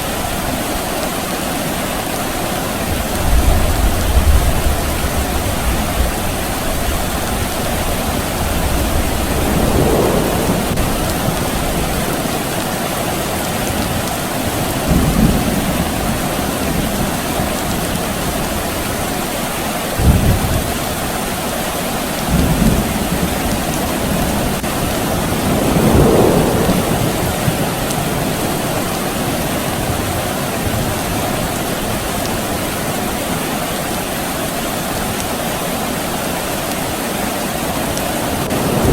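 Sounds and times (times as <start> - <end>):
steady rain falling: 0.0 - 38.9
distant thunder rumbling: 2.8 - 19.2, 20.0 - 33.1, 37.7 - 38.9.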